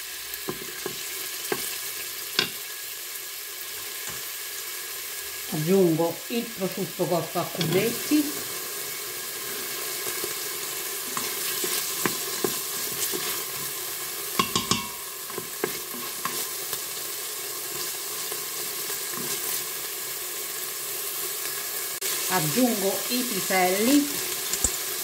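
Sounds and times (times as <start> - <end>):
food sizzling in oil: 0.0 - 25.0.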